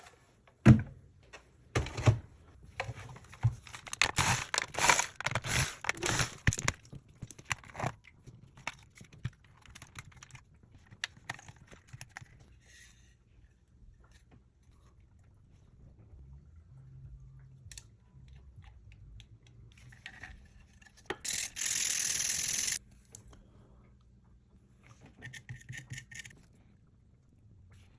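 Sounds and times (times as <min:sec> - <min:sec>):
plastic crinkling and clicking: 0:02.8 - 0:12.4.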